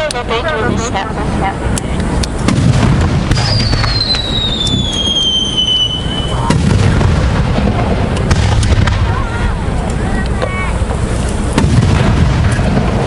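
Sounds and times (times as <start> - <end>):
low rumble: 0.0 - 13.0
firework pops and crackles: 1.8 - 13.0
firework whistle falling in pitch: 3.4 - 6.5.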